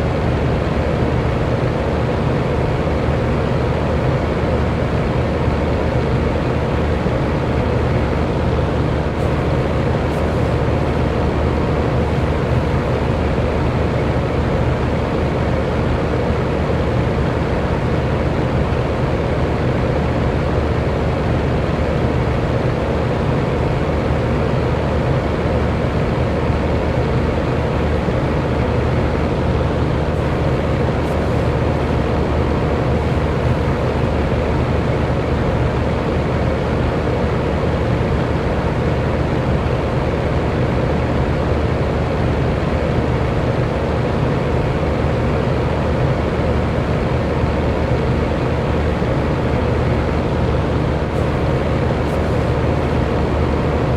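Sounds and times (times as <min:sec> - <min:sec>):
faint motor hum: 0:00.0 - 0:53.9
electric fan whooshing: 0:06.2 - 0:14.2, 0:26.3 - 0:35.5, 0:45.0 - 0:53.9.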